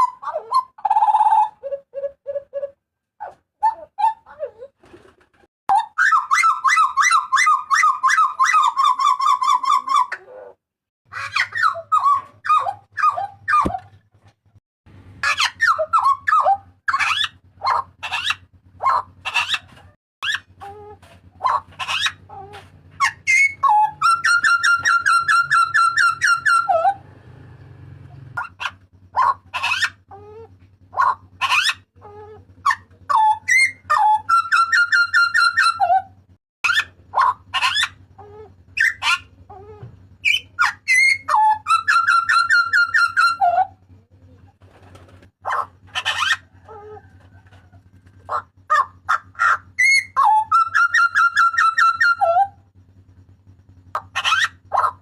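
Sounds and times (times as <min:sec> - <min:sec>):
bird whistling and yelping: 0:00.0 - 0:04.6, 0:05.7 - 0:13.9, 0:15.2 - 0:27.1, 0:28.4 - 0:43.8, 0:44.9 - 0:47.2, 0:48.2 - 0:52.7, 0:53.9 - 0:55.0
bird rattling chatter: 0:44.5 - 0:50.0.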